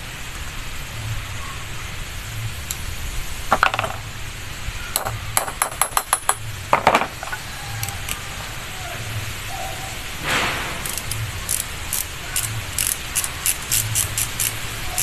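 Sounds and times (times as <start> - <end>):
metal tools knocking and clinking: 3.5 - 4.0, 5.0 - 7.5.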